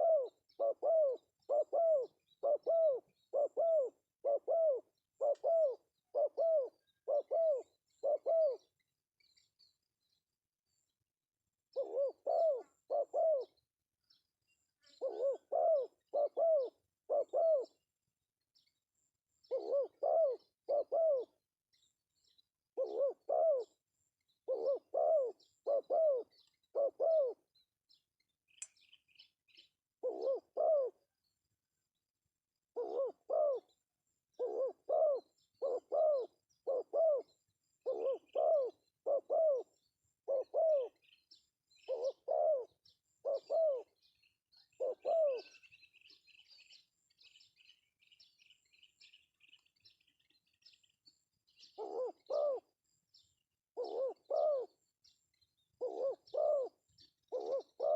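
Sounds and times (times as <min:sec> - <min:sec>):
dove cooing: 0:00.0 - 0:08.8, 0:11.7 - 0:13.6, 0:14.8 - 0:17.8, 0:19.4 - 0:21.9, 0:22.7 - 0:23.8, 0:24.4 - 0:27.5, 0:30.0 - 0:31.1, 0:32.7 - 0:46.1, 0:51.5 - 0:52.8, 0:53.7 - 0:54.8, 0:55.8 - 0:57.9
small birds chirping: 0:00.0 - 0:57.9.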